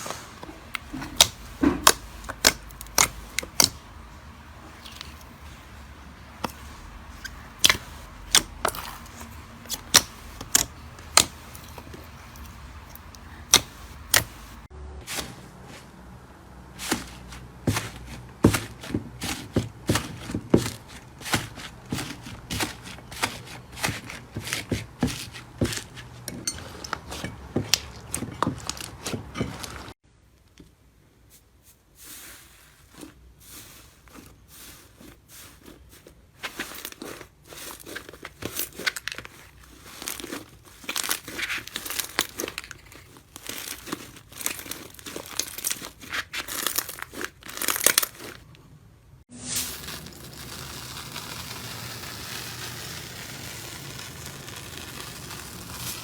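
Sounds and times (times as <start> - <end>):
slime crackling and popping: 0.7 - 4.1, 6.4 - 14.6, 36.9 - 48.4, 49.4 - 56.0.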